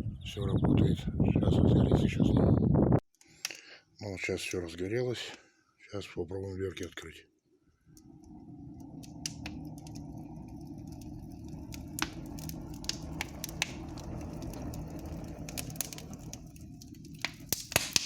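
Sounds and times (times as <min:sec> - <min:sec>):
low rumble of flames: 0:00.0 - 0:03.0, 0:07.6 - 0:18.0
burning wood crackling and popping: 0:07.8 - 0:18.0.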